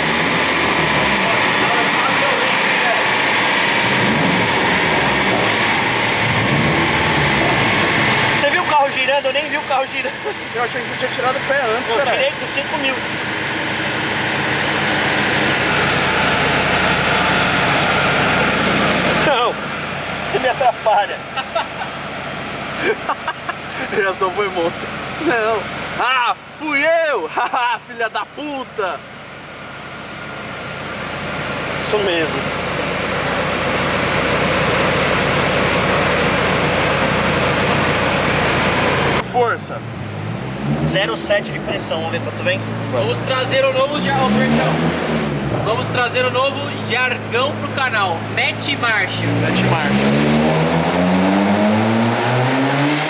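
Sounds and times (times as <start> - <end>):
loud steady rushing noise: 0.0 - 19.6
road and wind noise: 0.0 - 26.6, 29.0 - 53.0
high engine whine: 0.0 - 26.7, 28.3 - 53.0
car engine running: 0.0 - 53.0.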